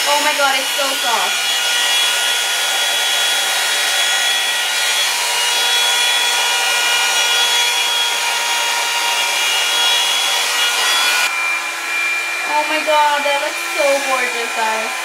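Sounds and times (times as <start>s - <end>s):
hair dryer brush fan whining: 0.0s - 15.0s.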